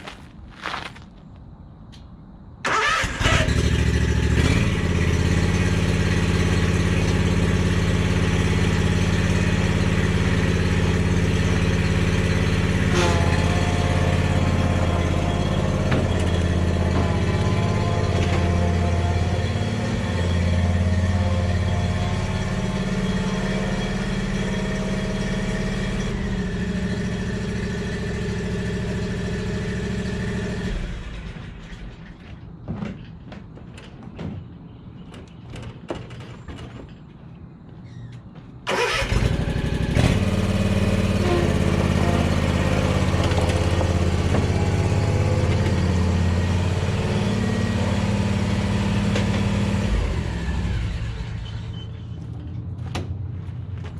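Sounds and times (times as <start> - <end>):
lawn mower engine running: 2.6 - 31.8, 38.7 - 51.2.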